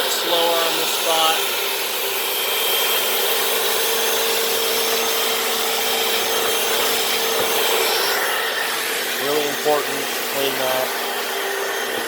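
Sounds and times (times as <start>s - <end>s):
brushes scrubbing floor: 0.0s - 1.5s, 3.9s - 12.0s
floor cleaner motor whine: 0.0s - 12.0s.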